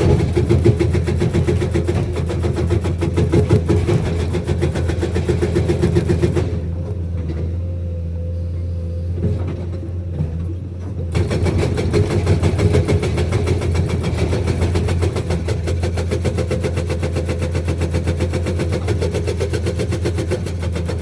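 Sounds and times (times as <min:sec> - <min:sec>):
hydraulic breaker hammering: 0:00.0 - 0:06.8, 0:11.1 - 0:21.0
diesel engine running: 0:00.0 - 0:21.0.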